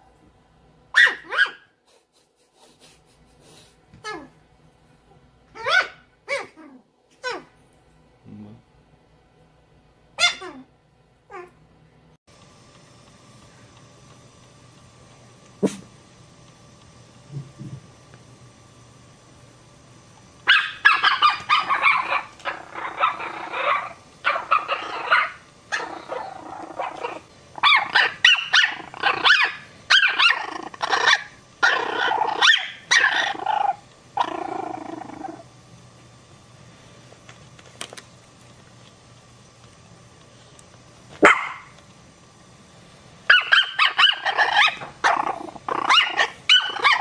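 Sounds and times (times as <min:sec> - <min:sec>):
puppy barking: 0:00.9 - 0:01.7, 0:05.6 - 0:06.6, 0:10.2 - 0:10.7, 0:20.4 - 0:33.4, 0:41.2 - 0:41.7, 0:43.3 - 0:45.2, 0:45.8 - 0:47.0.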